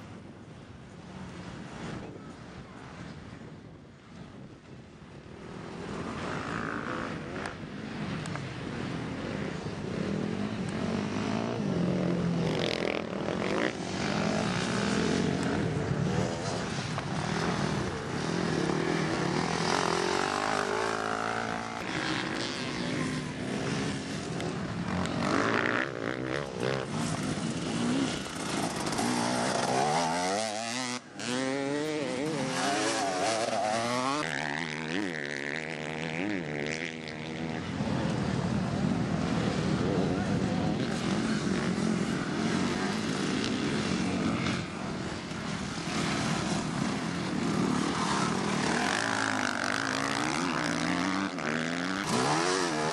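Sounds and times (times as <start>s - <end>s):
dirt bike engines revving: 5.2s - 52.9s.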